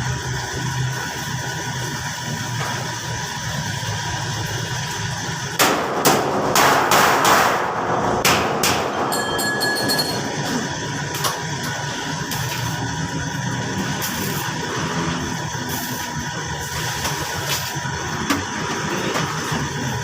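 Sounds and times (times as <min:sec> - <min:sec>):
steady hum: 0:00.0 - 0:20.0
ringing squeak: 0:09.0 - 0:10.4.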